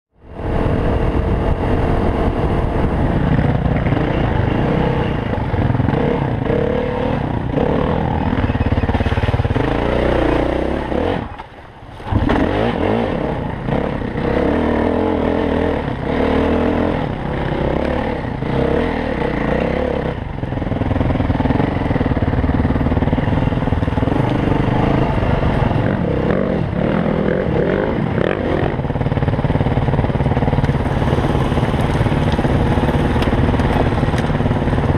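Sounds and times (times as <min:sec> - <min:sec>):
dirt bike engine revving: 0:00.3 - 0:11.4, 0:12.0 - 0:34.9.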